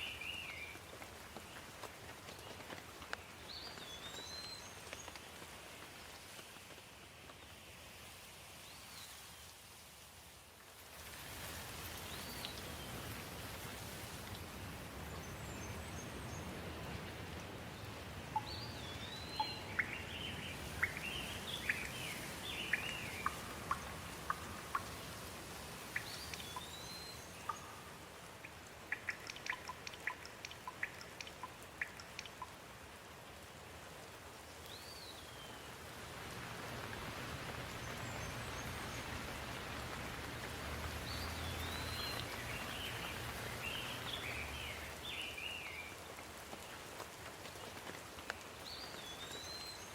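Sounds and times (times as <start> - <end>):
steady rain falling: 0.0 - 49.9
sharp ticks: 28.9 - 32.5.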